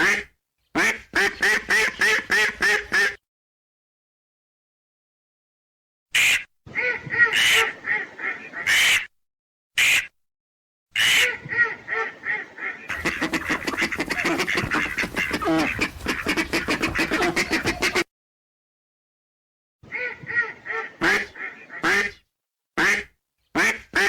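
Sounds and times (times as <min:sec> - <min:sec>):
ducks quacking: 0:06.2 - 0:09.1, 0:11.0 - 0:18.1, 0:19.9 - 0:22.2.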